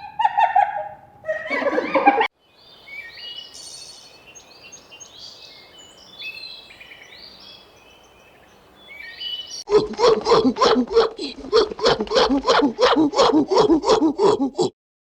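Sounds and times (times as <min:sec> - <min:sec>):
small birds chirping and singing: 0:01.8 - 0:12.4.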